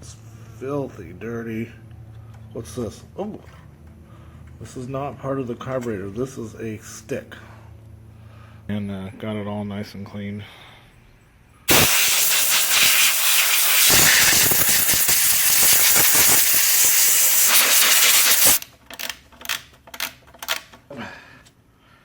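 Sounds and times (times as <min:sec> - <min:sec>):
pressurised spray hissing: 0:11.7 - 0:18.6.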